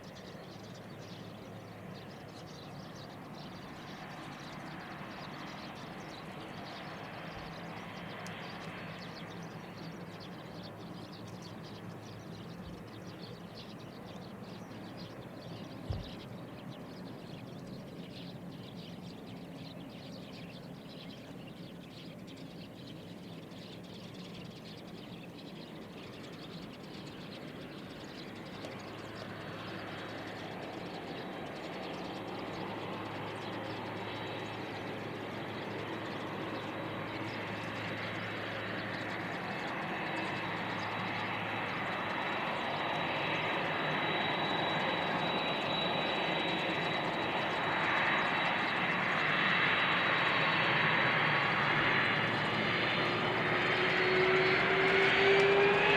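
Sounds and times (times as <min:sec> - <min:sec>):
jet engines approaching: 0:00.0 - 0:55.9
high engine whine: 0:26.1 - 0:55.9.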